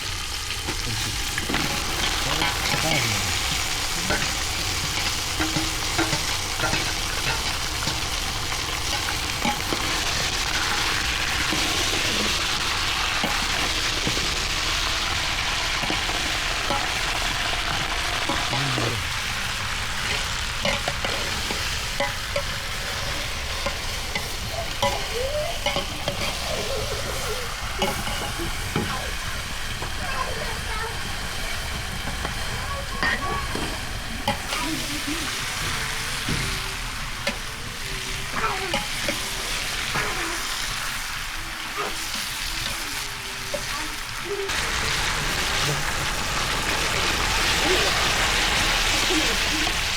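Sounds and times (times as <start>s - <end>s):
food sizzling in a pan: 0.0s - 49.9s
stirring clicks and scrapes: 0.6s - 30.0s.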